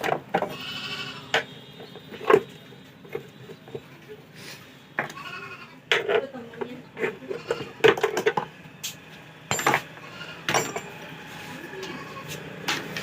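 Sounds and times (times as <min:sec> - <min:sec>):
hand tools clicking and clattering: 0:05.9 - 0:11.0.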